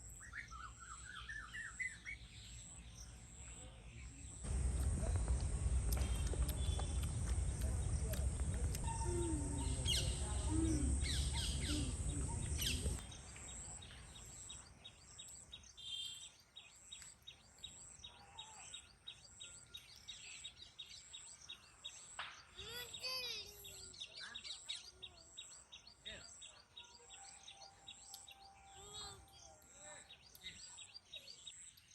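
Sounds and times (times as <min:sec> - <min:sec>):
small birds chirping: 0:00.1 - 0:31.9
low rumble: 0:04.5 - 0:13.0
voices: 0:04.5 - 0:13.0.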